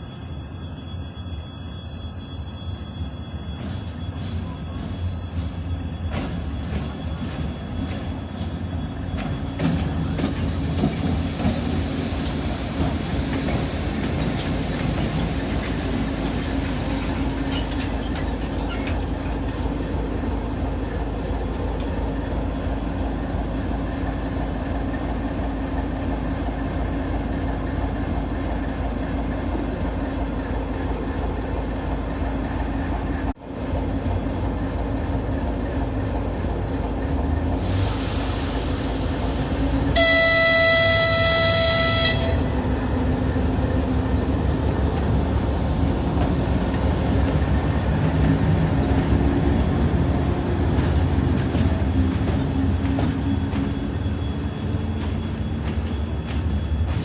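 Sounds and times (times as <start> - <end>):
faint high wheel squeaks: 0.0 - 24.1, 51.3 - 57.0
locomotive engine humming: 0.0 - 57.0.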